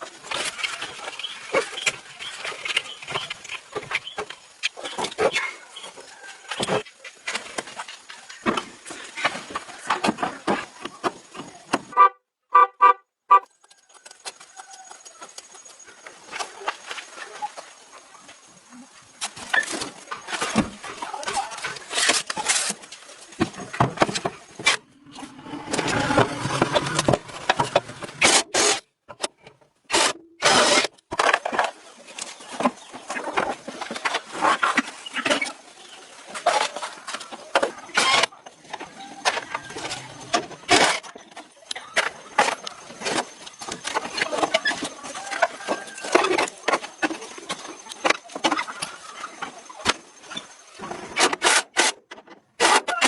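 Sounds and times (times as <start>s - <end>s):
hand tool scraping and rubbing: 24.0s - 28.8s.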